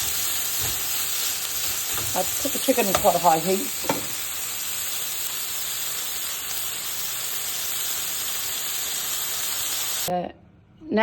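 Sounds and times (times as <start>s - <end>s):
chicken sizzling in butter: 0.0s - 10.1s.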